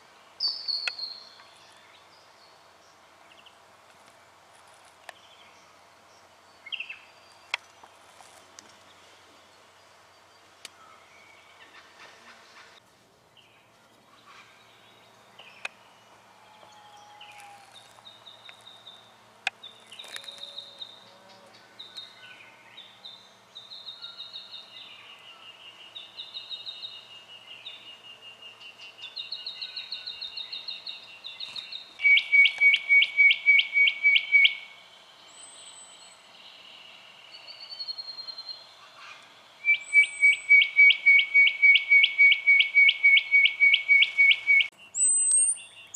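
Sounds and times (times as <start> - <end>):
bird whistling and trilling: 31.4 - 34.7, 39.6 - 45.9.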